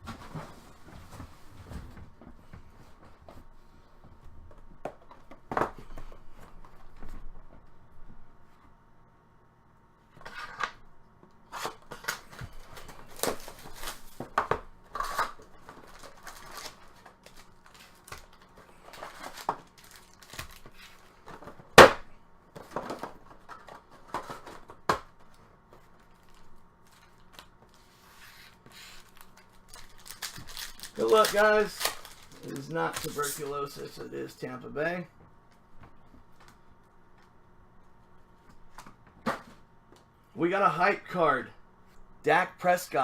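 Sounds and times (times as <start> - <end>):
plastic tearing and crinkling: 11.6 - 14.2, 14.9 - 21.2, 28.9 - 33.5.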